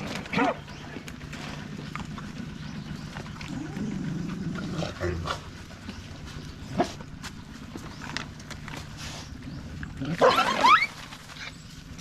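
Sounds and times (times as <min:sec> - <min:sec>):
steady low hum: 0:00.0 - 0:12.0
dog vocalising low: 0:01.8 - 0:05.8.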